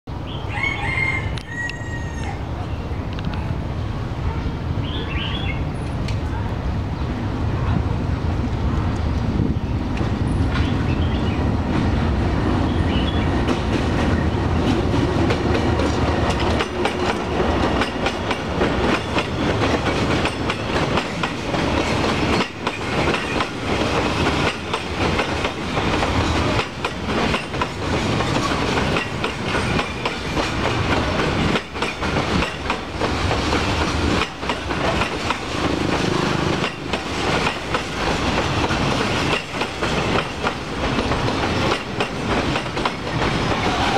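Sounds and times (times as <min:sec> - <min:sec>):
diesel locomotive engine drone: 0:02.4 - 0:43.9
train wheels clattering over rail joints: 0:12.9 - 0:43.9.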